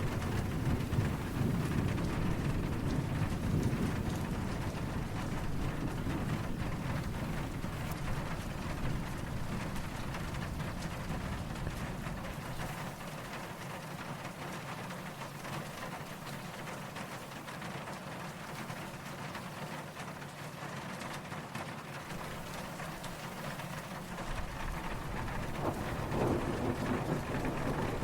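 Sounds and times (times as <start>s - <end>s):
distant thunder rumble: 0.0s - 13.6s, 22.1s - 28.0s
steady rain falling: 0.0s - 28.0s.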